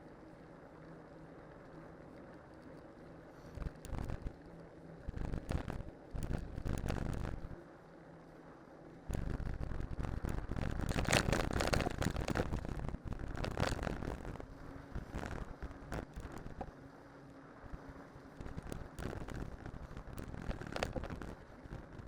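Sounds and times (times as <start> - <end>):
bike tyres rumbling downhill: 9.1 - 14.4.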